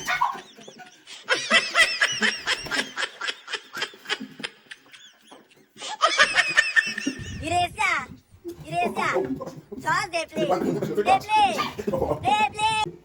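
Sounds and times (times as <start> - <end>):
person laughing: 0.3 - 7.6
burst of laughter and voice: 8.6 - 12.8.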